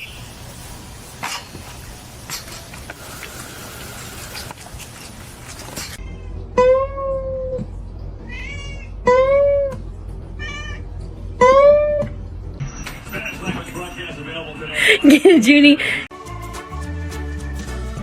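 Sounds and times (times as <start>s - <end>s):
steady hiss: 0.0s - 6.0s
cat meowing loudly: 8.3s - 9.4s.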